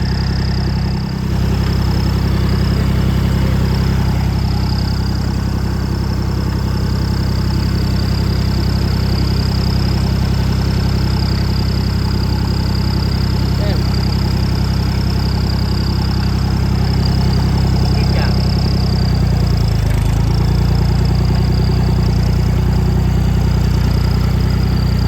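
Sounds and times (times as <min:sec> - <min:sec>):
high whine: 0:00.0 - 0:14.0
tractor engine running: 0:00.0 - 0:25.0.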